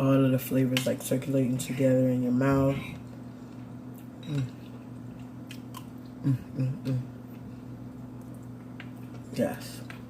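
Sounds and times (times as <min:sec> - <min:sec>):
person chewing food: 0:03.0 - 0:10.0
person humming mm: 0:04.2 - 0:04.6, 0:06.2 - 0:07.1.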